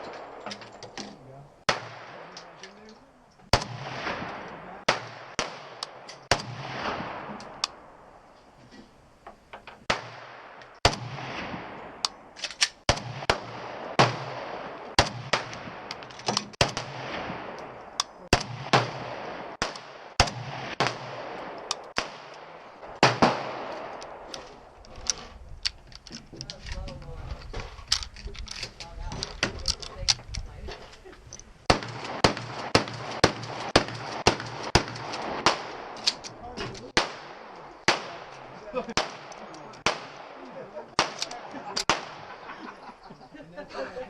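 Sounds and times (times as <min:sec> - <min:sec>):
gunshots with echo: 0:01.6 - 0:02.6, 0:03.5 - 0:07.6, 0:09.8 - 0:24.7, 0:31.6 - 0:36.0, 0:36.8 - 0:42.6.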